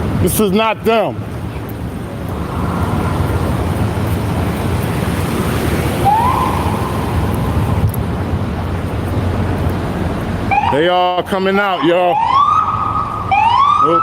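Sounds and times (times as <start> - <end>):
street traffic rumble: 0.0 - 14.0
wind buffeting microphone: 1.2 - 10.6.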